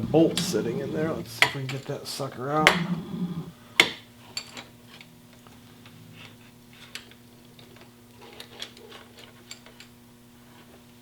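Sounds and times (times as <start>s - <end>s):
low hum: 0.0s - 1.5s.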